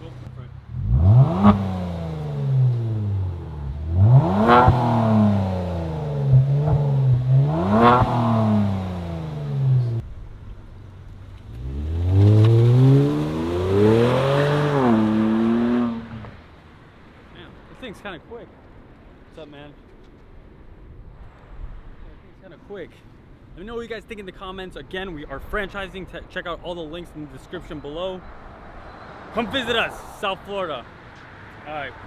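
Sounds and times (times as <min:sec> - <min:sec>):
car engine revving: 0:00.0 - 0:16.6, 0:27.0 - 0:31.6.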